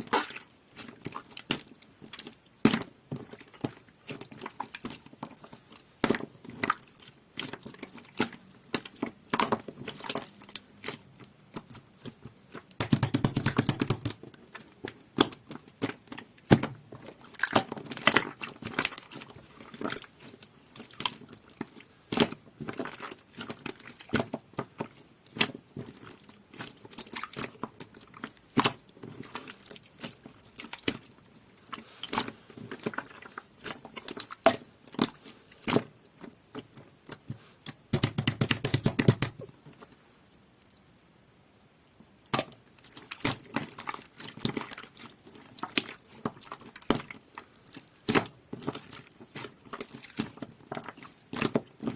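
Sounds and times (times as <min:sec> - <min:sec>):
slime squished with sticky clicks: 0:31.7 - 0:39.9, 0:42.2 - 0:51.9.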